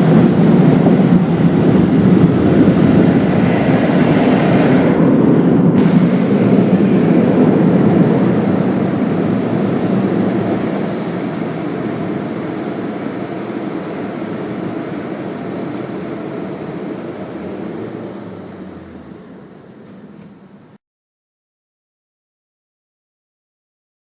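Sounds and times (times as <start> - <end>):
car wash machinery rushing: 0.0 - 4.1, 5.8 - 20.8.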